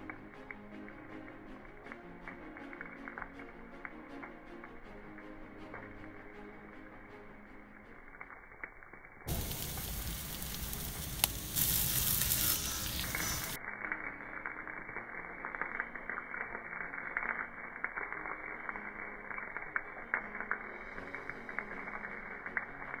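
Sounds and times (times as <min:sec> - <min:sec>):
small crackles: 0:00.0 - 0:23.0
fish sizzling on a grill: 0:07.9 - 0:23.0.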